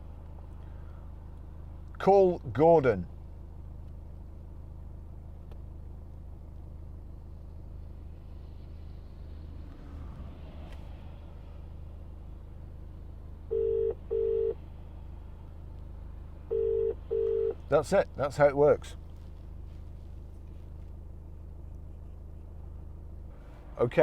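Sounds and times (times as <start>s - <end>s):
steady low hum: 0.0s - 24.0s
telephone ringback tone: 13.5s - 14.6s, 16.5s - 17.6s.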